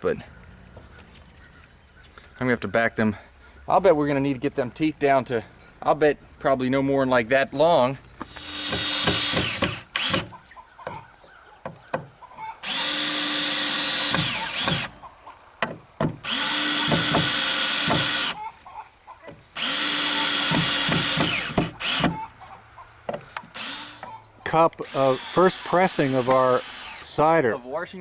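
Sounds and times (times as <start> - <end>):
power drill motor spinning: 8.2 - 10.4, 12.6 - 15.0, 16.2 - 18.4, 19.6 - 22.3, 23.4 - 24.2, 24.8 - 27.2
handling clicks and knocks: 15.6 - 16.2.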